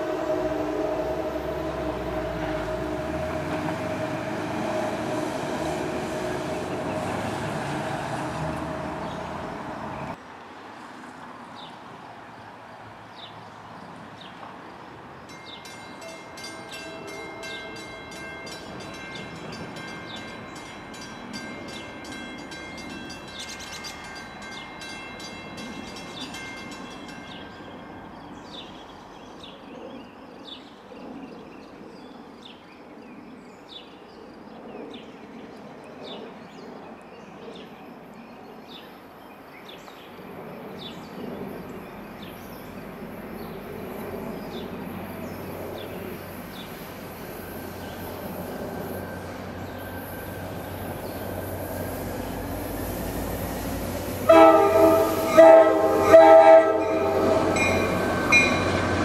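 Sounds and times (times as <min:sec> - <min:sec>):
train rumbling: 0:00.0 - 0:10.2, 0:15.2 - 0:29.1, 0:40.3 - 0:59.0
bell ringing: 0:15.3 - 0:27.9.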